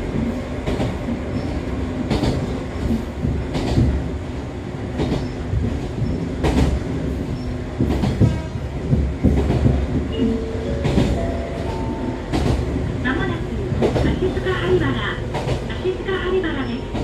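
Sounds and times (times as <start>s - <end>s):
train interior rumble: 0.0s - 17.0s
wheels clicking over rail joints: 5.0s - 12.9s.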